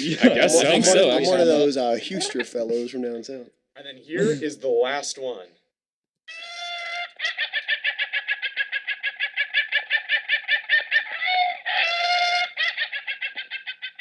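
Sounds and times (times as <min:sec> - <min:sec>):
chicken drawn-out cry: 0:06.3 - 0:14.0.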